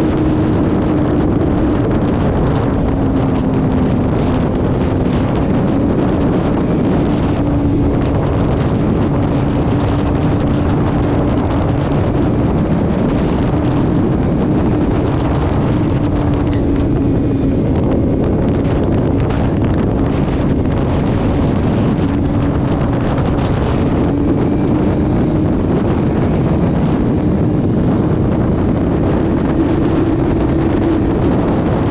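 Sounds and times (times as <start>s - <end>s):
engine drone: 0.0s - 31.9s
wind and road noise: 0.0s - 31.9s.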